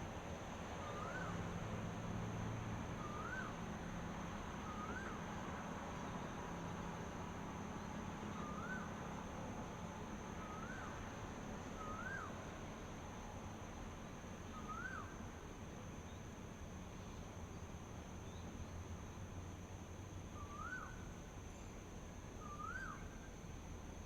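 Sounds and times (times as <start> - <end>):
bird whistled call: 0.8 - 1.4, 3.0 - 3.6, 4.6 - 5.2, 8.4 - 8.9, 10.4 - 10.9, 11.8 - 12.3, 14.5 - 15.1, 20.4 - 21.0, 22.4 - 23.1.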